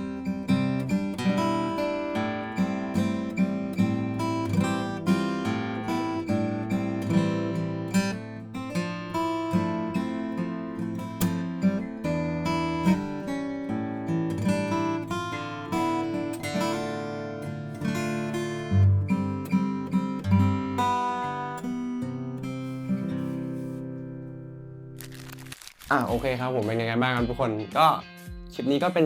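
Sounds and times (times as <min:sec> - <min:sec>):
fingerstyle acoustic guitar: 0:00.0 - 0:26.4.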